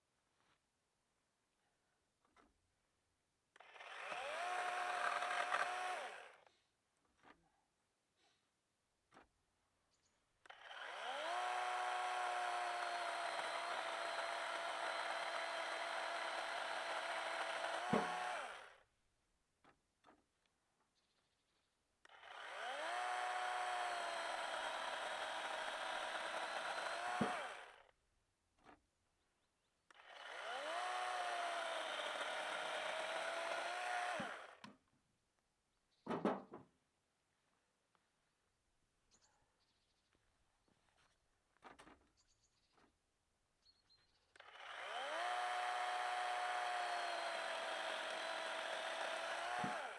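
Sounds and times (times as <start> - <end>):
chainsaw running: 3.6 - 6.5, 10.4 - 18.9, 22.0 - 28.0, 29.9 - 34.7, 44.4 - 49.9.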